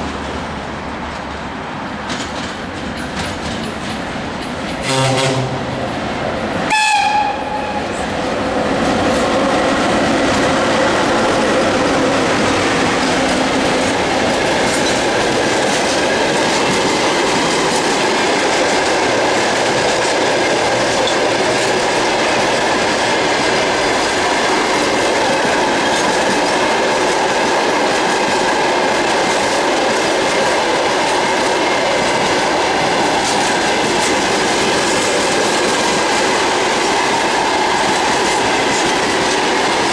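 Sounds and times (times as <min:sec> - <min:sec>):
freight train clattering on rails: 0:00.0 - 0:39.9
locomotive horn blast: 0:04.8 - 0:05.9, 0:06.7 - 0:07.9.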